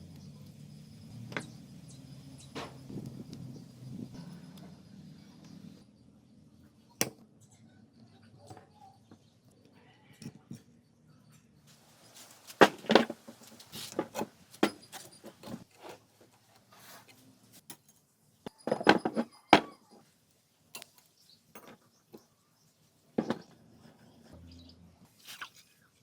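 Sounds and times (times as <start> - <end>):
metal tools clinking and knocking: 17.6 - 20.0, 20.7 - 22.0.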